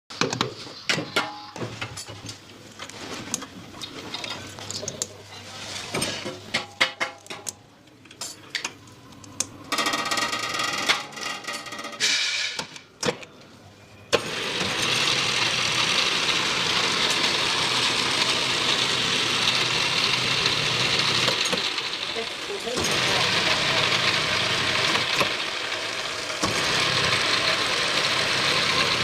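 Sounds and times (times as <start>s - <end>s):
metal clicks and knocks: 6.1s - 12.0s
machine whine: 13.6s - 29.0s.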